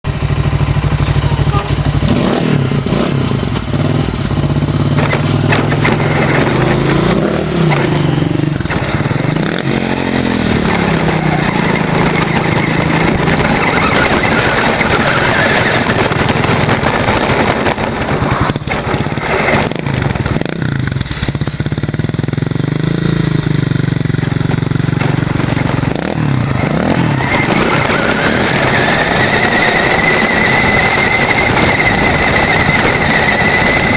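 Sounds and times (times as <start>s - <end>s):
motorcycle engine revving: 0.0s - 33.9s
toy car rattling: 10.6s - 20.4s.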